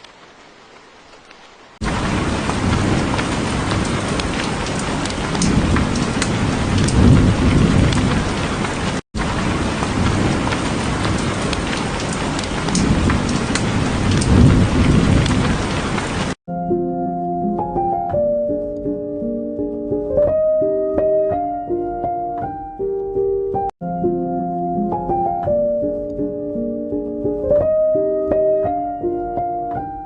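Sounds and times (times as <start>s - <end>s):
heavy rain: 0.0s - 16.4s
low thunder rumbling: 1.8s - 16.4s.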